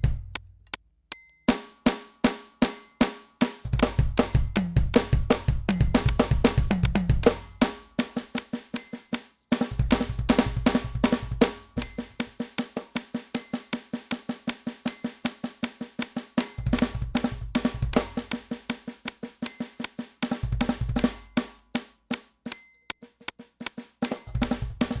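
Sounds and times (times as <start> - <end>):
electronic drum kit groove: 0.0 - 0.5, 3.4 - 25.0
bass drum hits: 3.7 - 7.4.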